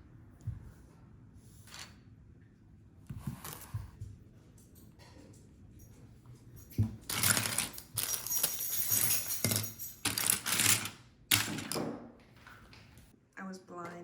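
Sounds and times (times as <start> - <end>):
plastic pieces clattering: 7.1 - 11.9.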